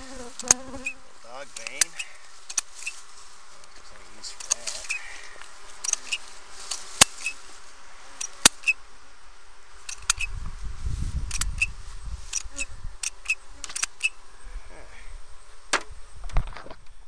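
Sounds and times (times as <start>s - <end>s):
honeybees buzzing: 0.0s - 16.2s
sharp clicks: 1.5s - 2.9s, 4.4s - 5.0s, 5.8s - 7.4s, 9.8s - 10.3s, 11.2s - 11.7s, 12.3s - 14.2s.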